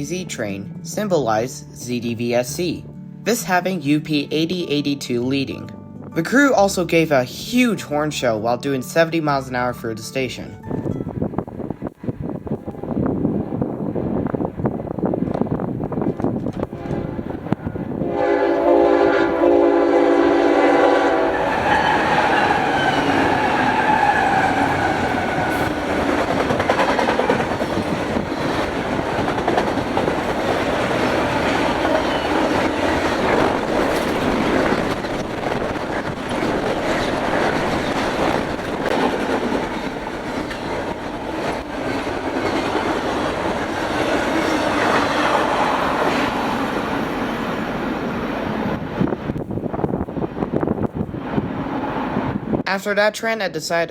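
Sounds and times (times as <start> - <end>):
locomotive horn blaring chord: 16.7 - 26.0
train wheels clattering on rails: 21.4 - 46.1.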